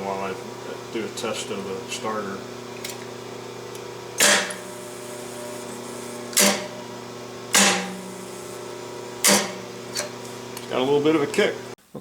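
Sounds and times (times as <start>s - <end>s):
rotary phase converter humming: 0.0s - 11.8s
contactor buzz: 0.1s - 11.8s
motor starter contactor clacking: 4.2s - 6.8s, 7.5s - 10.8s.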